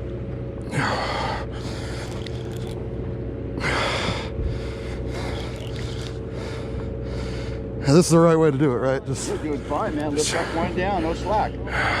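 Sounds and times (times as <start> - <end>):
steady low hum: 0.0 - 12.0
man breathing hard: 0.6 - 2.7, 3.6 - 7.9, 9.1 - 12.0.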